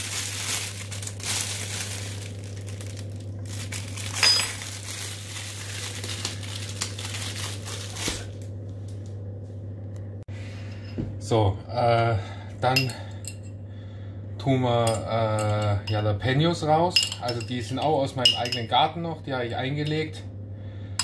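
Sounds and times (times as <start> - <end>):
spice packet rustling: 0.0 - 8.4
steady low hum: 0.0 - 21.0.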